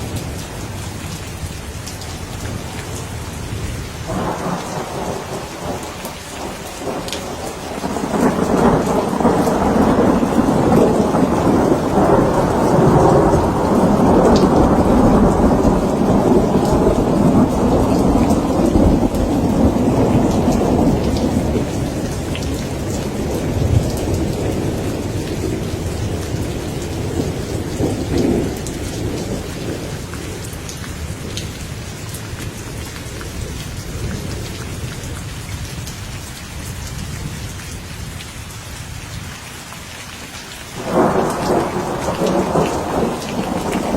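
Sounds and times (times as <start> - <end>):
steady rain: 0.0 - 43.9
rolling thunder: 3.4 - 31.4, 40.8 - 43.9.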